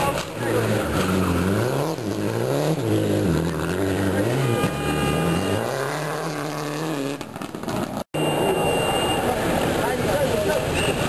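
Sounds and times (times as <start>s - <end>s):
rally car engine revving: 0.0s - 8.0s.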